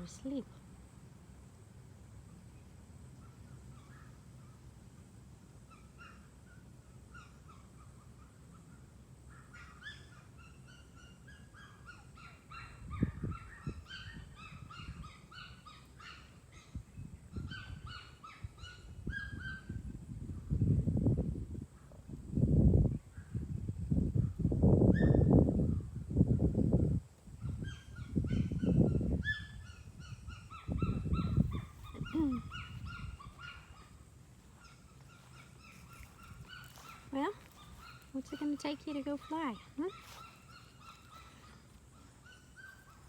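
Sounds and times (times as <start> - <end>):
small birds chirping: 2.2 - 4.8, 27.3 - 43.0.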